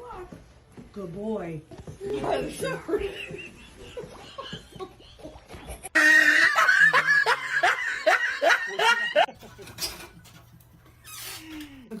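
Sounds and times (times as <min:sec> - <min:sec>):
person laughing: 0:03.0 - 0:09.8.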